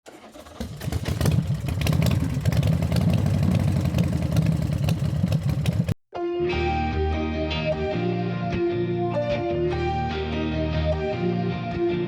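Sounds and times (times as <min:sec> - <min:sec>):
rough engine idling: 0:00.1 - 0:06.0
guitar music: 0:06.1 - 0:12.0.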